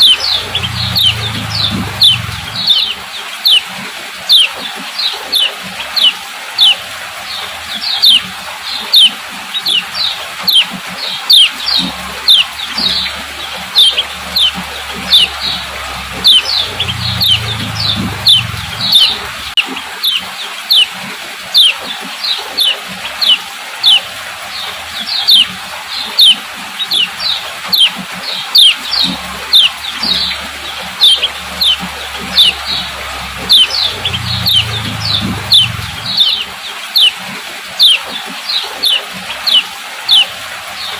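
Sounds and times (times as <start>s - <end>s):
bird chirping call: 0.0s - 37.2s, 37.8s - 40.9s.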